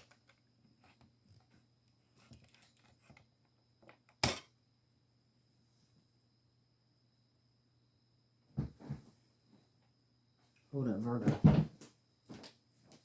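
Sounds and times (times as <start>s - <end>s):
soft taps and rustles: 8.6s - 9.7s.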